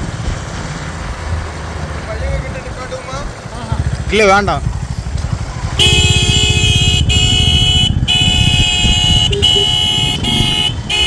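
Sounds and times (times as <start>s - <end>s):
motorcycle engine running: 3.3s - 11.0s
vehicle horn blasts: 5.8s - 11.0s.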